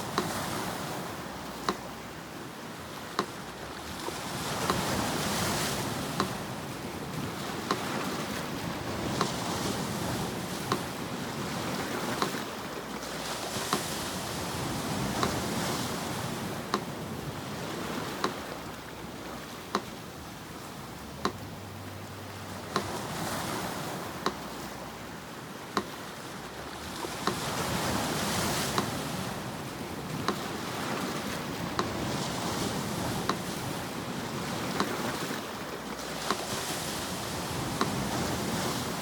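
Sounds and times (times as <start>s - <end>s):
metronome ticking: 0.0s - 0.6s, 1.5s - 2.2s, 3.1s - 6.6s, 14.6s - 17.4s, 18.0s - 29.0s
sea surf washing on shore: 0.0s - 39.0s.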